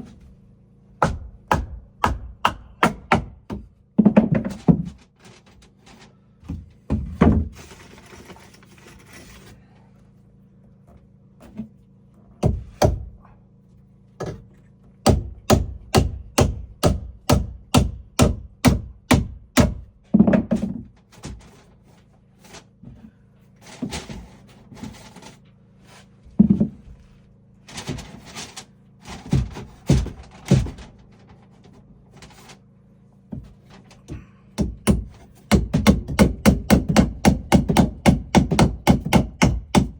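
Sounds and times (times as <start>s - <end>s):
hammer striking wood: 1.0s - 4.8s, 12.4s - 13.1s, 15.0s - 20.8s, 34.1s - 39.9s.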